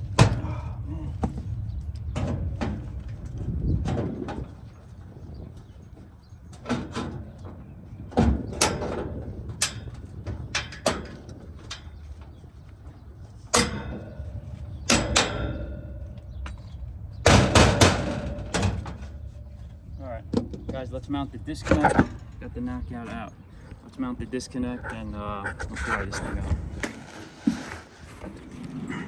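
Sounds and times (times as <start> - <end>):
sharp metal clanks: 13.5 - 19.8.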